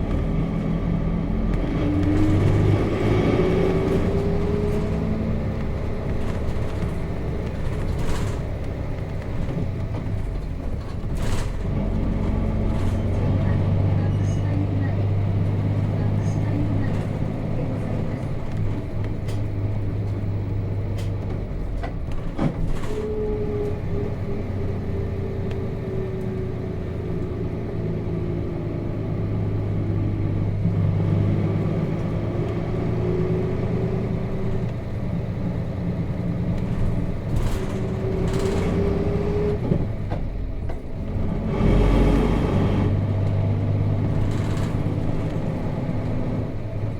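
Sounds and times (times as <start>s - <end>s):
bus diesel engine running: 0.0s - 46.9s
knocks from bus body: 21.0s - 23.0s.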